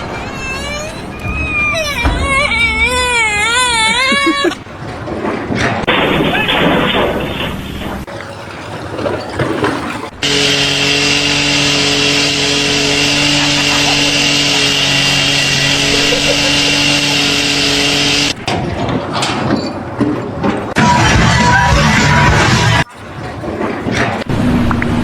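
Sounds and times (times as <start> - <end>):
power tool humming: 10.2 - 18.4.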